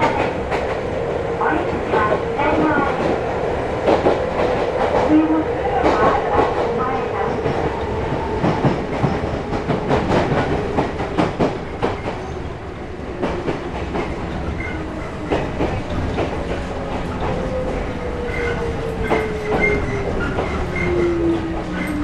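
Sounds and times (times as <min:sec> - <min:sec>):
train running rumble: 0:00.0 - 0:22.0
wheels clicking over rail joints: 0:07.4 - 0:22.0.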